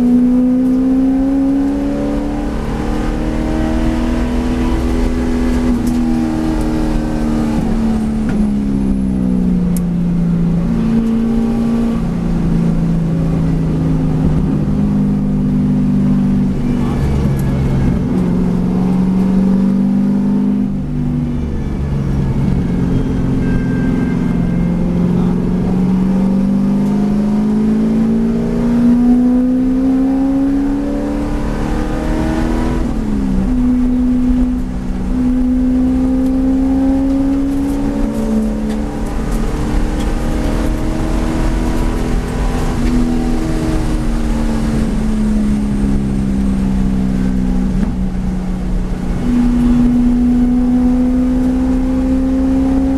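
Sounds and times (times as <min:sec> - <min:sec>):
race car engine revving: 0:00.0 - 0:52.9.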